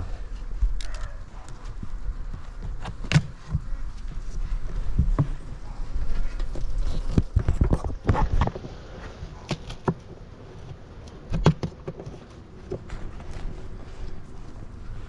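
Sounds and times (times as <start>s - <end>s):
beehive lid knocking and scraping: 10.7s - 13.1s.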